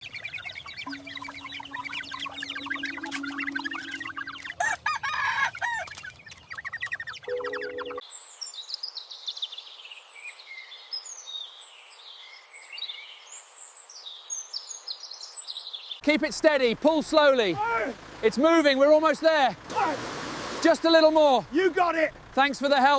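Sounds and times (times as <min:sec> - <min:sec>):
chickens clucking: 0:00.0 - 0:08.0
small birds chirping: 0:00.0 - 0:19.0
rooster crowing: 0:04.4 - 0:06.0
light hiss: 0:19.6 - 0:21.4.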